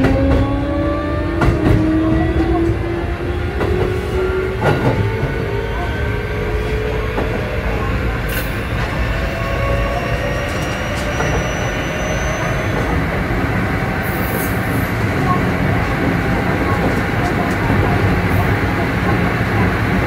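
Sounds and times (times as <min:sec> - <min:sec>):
rumble of wheels on track: 0:00.0 - 0:20.0
faint wheel squeal: 0:10.0 - 0:12.9.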